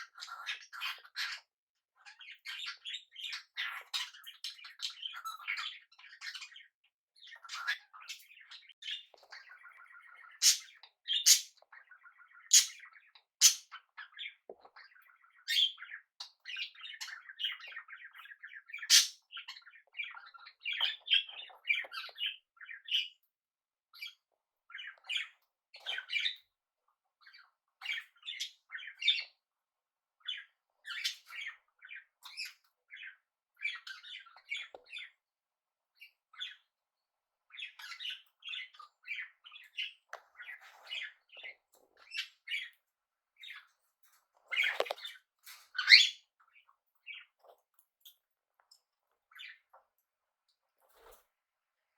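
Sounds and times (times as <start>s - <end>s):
parrots chirping and chattering: 0.0s - 23.2s, 23.9s - 26.6s, 27.2s - 29.4s, 30.2s - 35.2s, 36.0s - 36.8s, 37.4s - 51.3s
parrot squawks: 10.4s - 11.5s, 12.5s - 12.8s, 13.4s - 13.7s, 18.9s - 19.2s.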